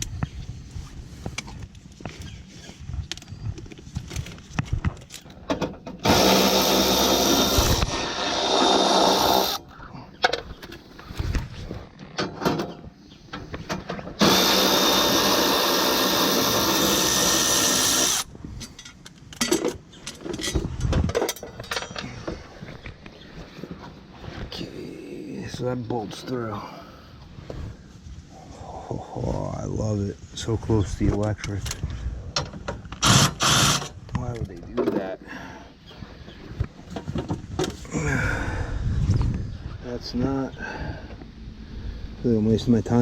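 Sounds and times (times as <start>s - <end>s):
power drill running: 6.0s - 9.6s, 14.2s - 18.3s, 33.0s - 33.9s
handling clicks and knocks: 18.6s - 23.0s.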